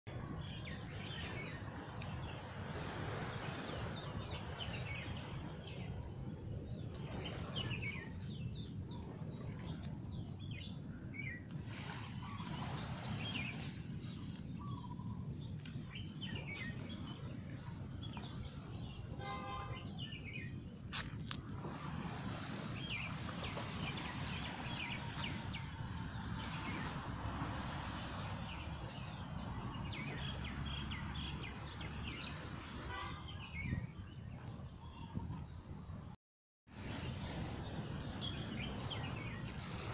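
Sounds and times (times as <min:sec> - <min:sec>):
small birds chirping: 0:03.7 - 0:21.1.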